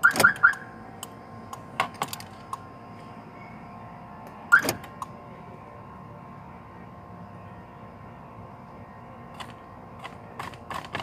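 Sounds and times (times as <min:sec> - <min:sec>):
car alarm chirps: 0:00.0 - 0:00.8, 0:04.5 - 0:04.9
clicks of wiring and plastic: 0:09.4 - 0:11.0.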